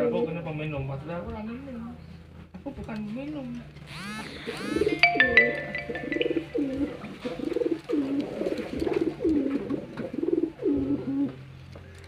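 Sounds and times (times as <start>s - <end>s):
pigeon cooing: 4.4s - 5.2s, 6.0s - 11.4s
high ringing tone: 4.8s - 6.9s.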